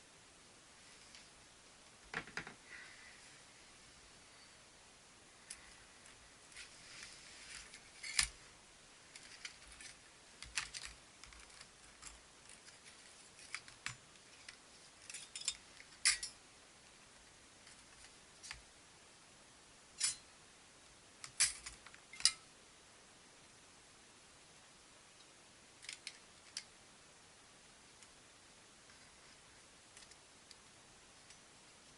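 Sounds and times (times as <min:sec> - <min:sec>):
soft rustling: 0:05.3 - 0:16.0
small hard parts clicking: 0:09.1 - 0:16.4, 0:25.8 - 0:26.7.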